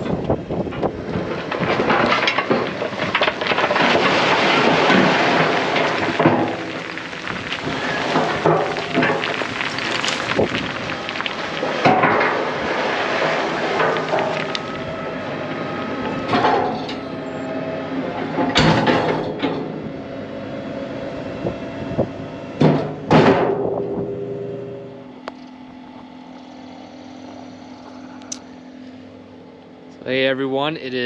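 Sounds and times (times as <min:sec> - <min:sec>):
tractor engine running: 0:00.0 - 0:30.2
metallic bangs and clanks: 0:18.2 - 0:19.8, 0:22.6 - 0:25.1.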